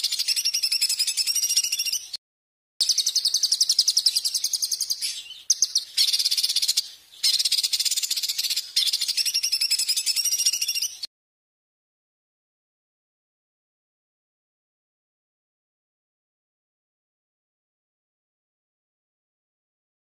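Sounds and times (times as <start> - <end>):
songbird scolding trill: 0.0 - 2.2, 2.8 - 11.1.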